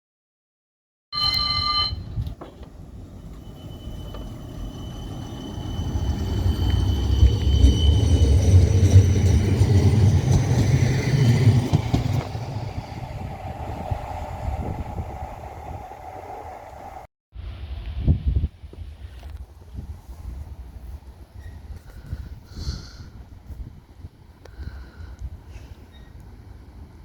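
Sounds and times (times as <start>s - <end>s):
short high tone: 1.2s - 2.2s
high whine: 1.2s - 17.1s
tram passing rumble: 1.2s - 17.9s.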